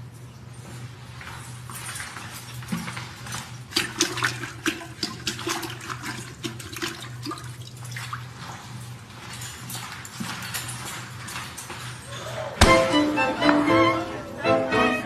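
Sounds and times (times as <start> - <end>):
water splashing in a toilet bowl: 3.3 - 8.4.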